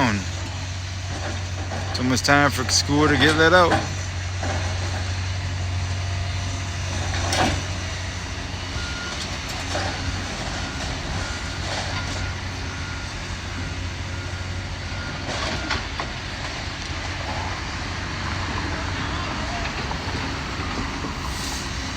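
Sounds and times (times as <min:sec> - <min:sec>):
heavy machinery engine hum: 0:00.0 - 0:21.9
reversing alarm beeping: 0:07.7 - 0:16.1.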